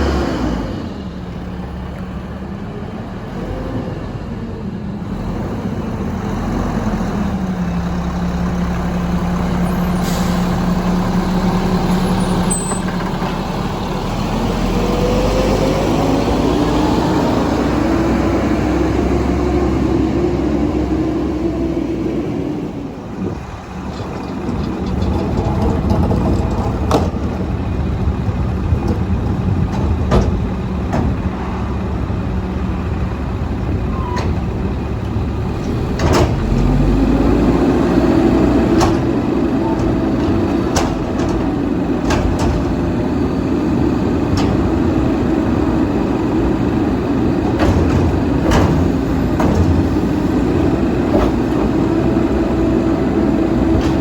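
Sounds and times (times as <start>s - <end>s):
diesel truck engine running: 0.0s - 54.0s
metallic clanks and knocks: 23.7s - 31.5s.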